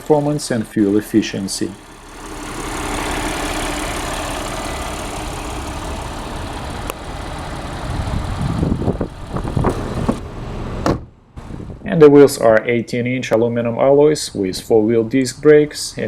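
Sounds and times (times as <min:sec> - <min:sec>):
car engine idling: 0:00.0 - 0:11.6.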